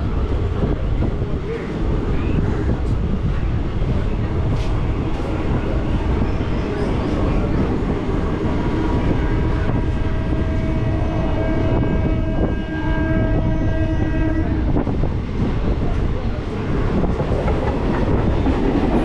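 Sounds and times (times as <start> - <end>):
train wheels rumbling on rail: 0.0 - 19.0
long pitched tone: 8.9 - 14.7.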